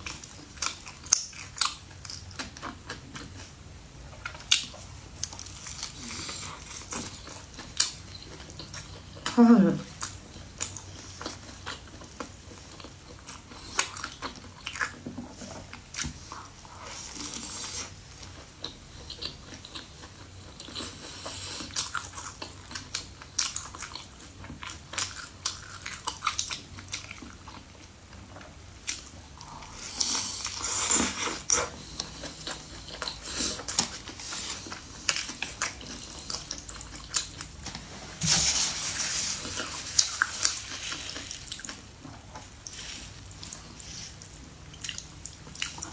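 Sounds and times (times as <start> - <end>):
person chewing and biting: 39.2 - 45.9.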